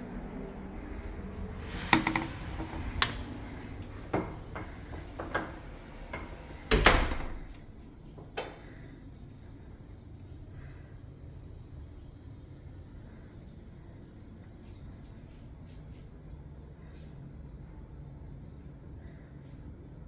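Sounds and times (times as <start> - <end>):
knocks and clicks: 1.7 - 7.6.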